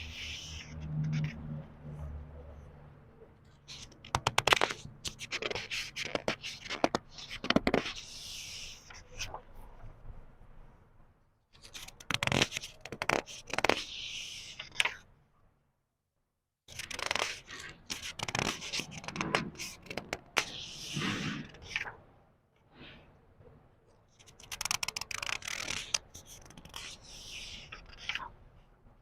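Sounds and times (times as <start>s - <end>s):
book pages turning: 3.6s - 9.5s, 11.6s - 15.0s, 16.7s - 22.0s, 24.2s - 28.4s
paper rustling and crackling: 16.7s - 22.0s, 24.2s - 28.3s.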